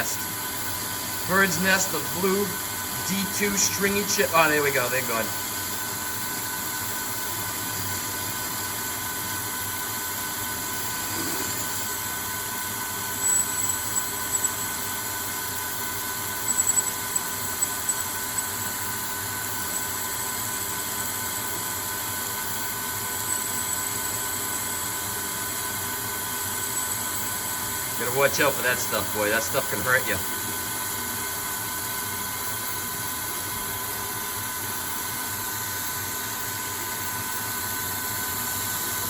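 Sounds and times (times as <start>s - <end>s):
lathe cutting steel: 1.3s - 5.5s, 10.5s - 27.1s.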